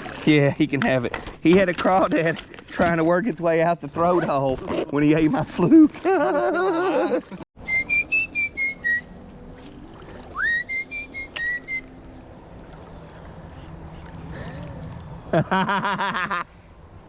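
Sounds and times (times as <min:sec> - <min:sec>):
person whistling a tune: 0:07.6 - 0:09.2, 0:10.3 - 0:11.9.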